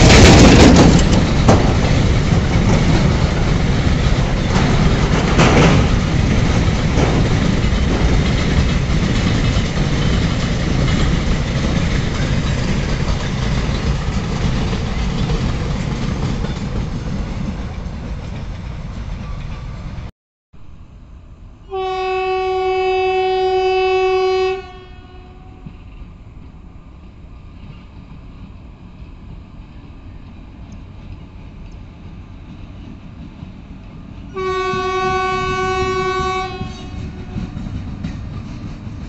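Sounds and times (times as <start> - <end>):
train wagons rumbling and clattering: 0.0 - 20.1, 23.6 - 39.0
locomotive horn: 21.6 - 25.8, 34.3 - 37.7.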